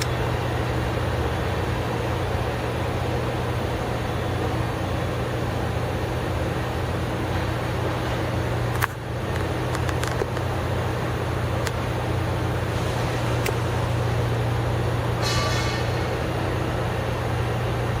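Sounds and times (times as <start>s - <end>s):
engine humming steadily: 0.0s - 18.0s.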